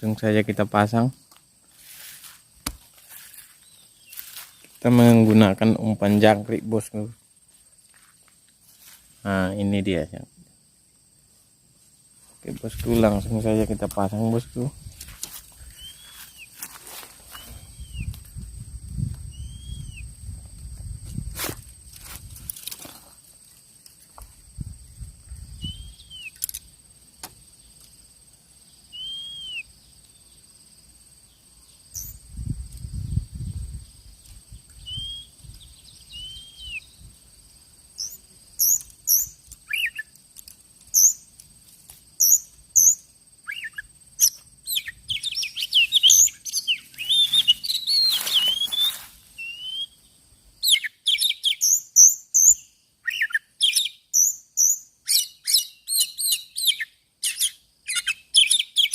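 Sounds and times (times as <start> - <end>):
bird chirping: 3.5 - 6.9, 15.6 - 16.6, 17.2 - 18.1, 19.3 - 20.1, 24.9 - 26.6, 28.6 - 30.5, 31.2 - 32.3, 33.8 - 37.2, 38.0 - 40.2, 40.9 - 41.3, 42.2 - 58.9.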